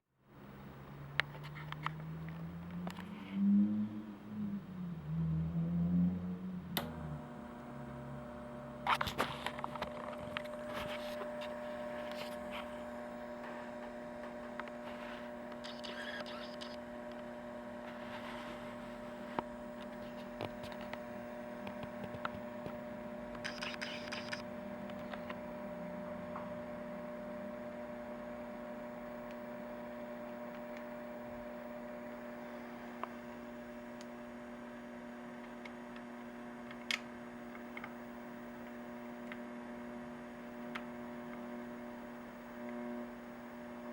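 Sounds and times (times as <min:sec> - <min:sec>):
scanner humming: 0:06.6 - 0:43.9
short scratchy bursts: 0:13.5 - 0:16.8, 0:23.4 - 0:24.4.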